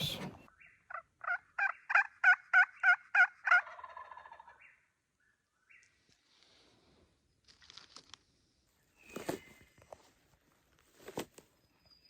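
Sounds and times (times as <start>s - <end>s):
turkey calling: 0.0s - 4.8s.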